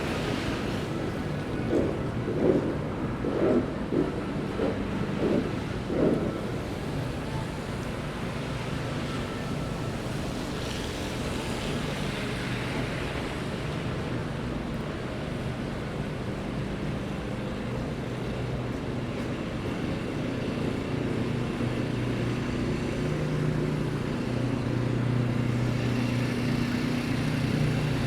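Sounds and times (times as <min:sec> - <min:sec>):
hum of traffic engines: 0:00.0 - 0:28.0
short muffled thumps: 0:01.7 - 0:06.4.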